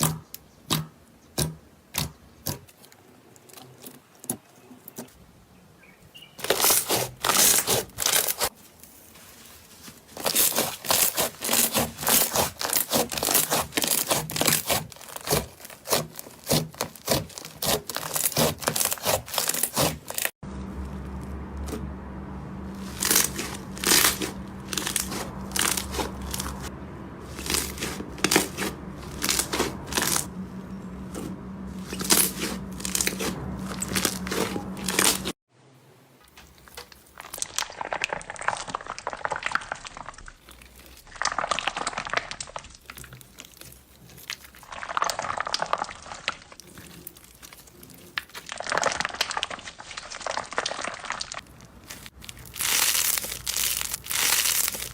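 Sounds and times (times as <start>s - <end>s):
slime crackling and popping: 10.2s - 20.4s, 22.8s - 26.7s, 36.4s - 54.9s
steady low hum: 20.4s - 35.4s.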